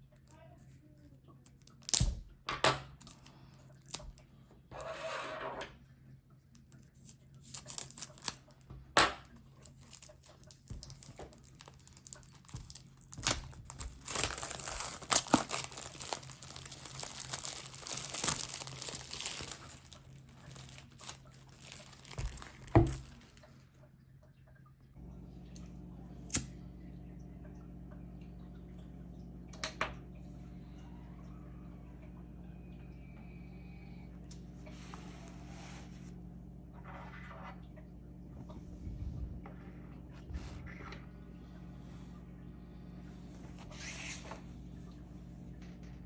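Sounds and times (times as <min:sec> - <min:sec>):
plastic wrap crinkling: 0:07.1 - 0:08.7, 0:09.3 - 0:23.6.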